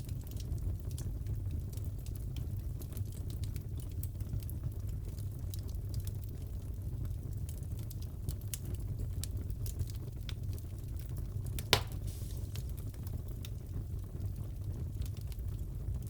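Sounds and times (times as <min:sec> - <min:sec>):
wood fire crackling: 0:00.0 - 0:16.0
fire pop: 0:11.5 - 0:13.6.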